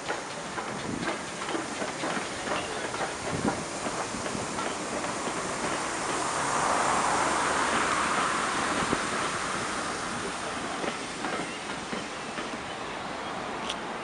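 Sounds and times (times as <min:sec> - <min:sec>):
train rumble: 0:00.0 - 0:14.0
train wheels clicking on rails: 0:00.0 - 0:14.0.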